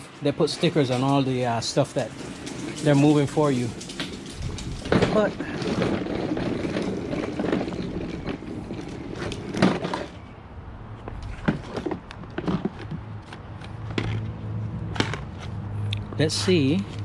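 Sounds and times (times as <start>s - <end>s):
pressure washer clunks and knocks: 1.9s - 6.3s.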